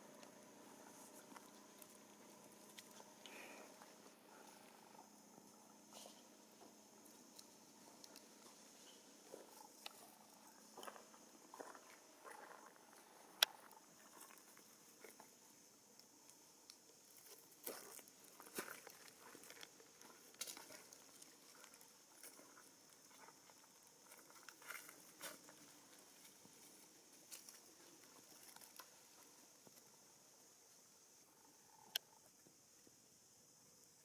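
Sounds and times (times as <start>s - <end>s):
steady high hiss: 0.0s - 34.0s.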